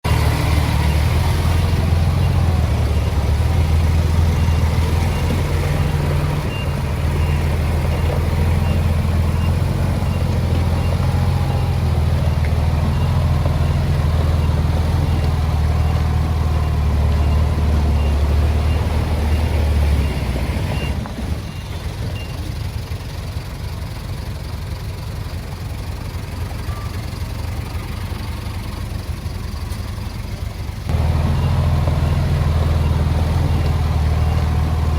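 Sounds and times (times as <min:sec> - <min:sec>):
diesel machinery running: 0:00.0 - 0:34.9
faint reversing beeper: 0:00.4 - 0:12.1, 0:12.8 - 0:22.5, 0:26.6 - 0:28.5, 0:31.0 - 0:34.9.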